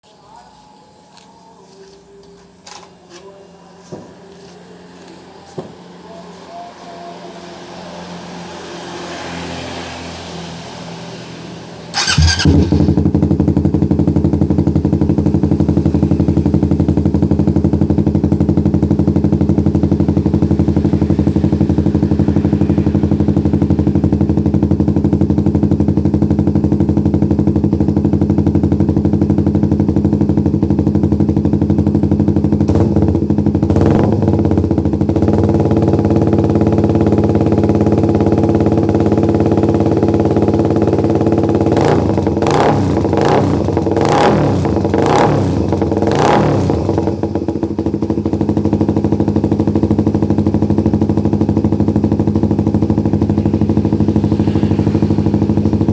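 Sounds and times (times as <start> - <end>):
motorcycle engine idling: 11.5 - 55.9.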